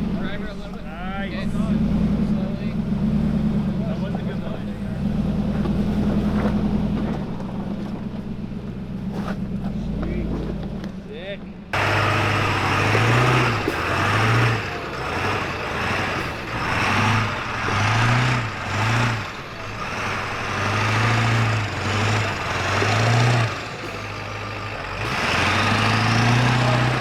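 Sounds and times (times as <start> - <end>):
off-road vehicle engine revving: 0.0 - 27.0.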